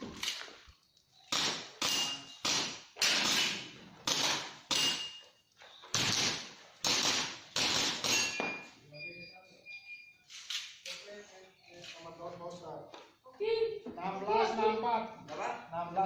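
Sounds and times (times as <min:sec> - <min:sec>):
airsoft pistol shots: 0:01.3 - 0:05.2, 0:05.9 - 0:08.4.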